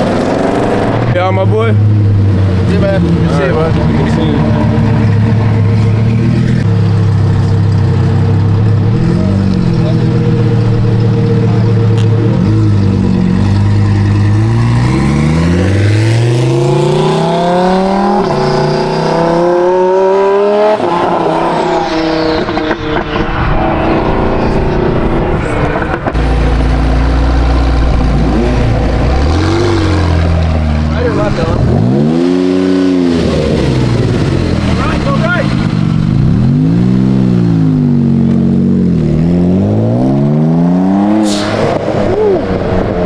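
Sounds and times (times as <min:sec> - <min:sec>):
deep car engine rumble: 0:00.0 - 0:43.0
sports car engine accelerating: 0:00.0 - 0:43.0.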